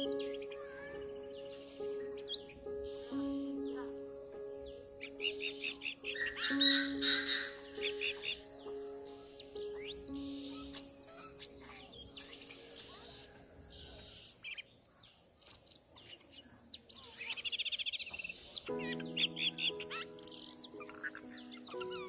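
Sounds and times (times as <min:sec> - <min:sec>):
bird calls chirping and whistling: 0:04.6 - 0:14.7
fast bird trill: 0:05.0 - 0:12.9.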